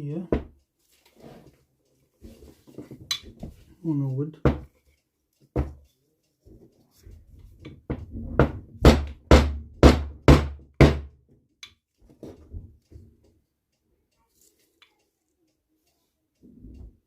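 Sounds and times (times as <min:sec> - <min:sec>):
softer knocks: 0:04.4 - 0:04.7, 0:05.6 - 0:05.8
hard knocks on engine crankcase: 0:07.9 - 0:11.2.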